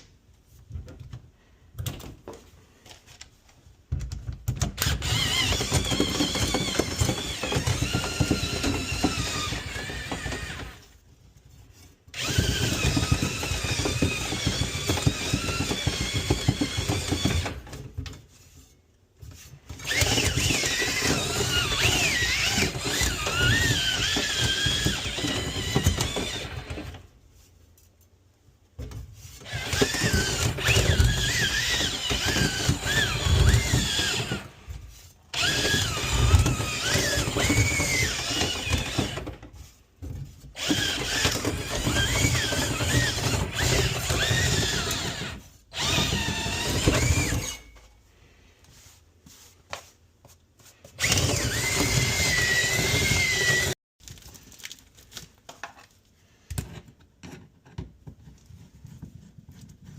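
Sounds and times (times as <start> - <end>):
power drill spinning brush in duct: 4.9 - 10.9, 12.2 - 17.6, 19.8 - 27.5, 29.2 - 39.9, 40.5 - 47.8, 50.7 - 53.8.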